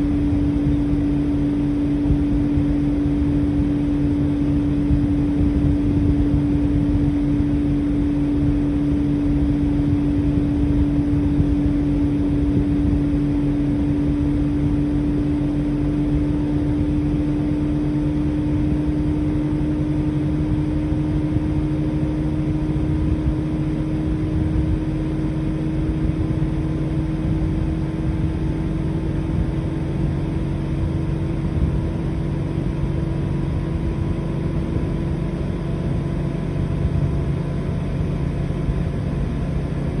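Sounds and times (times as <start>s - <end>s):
air conditioner compressor hum: 0.0s - 40.0s
fan rumble: 0.0s - 40.0s.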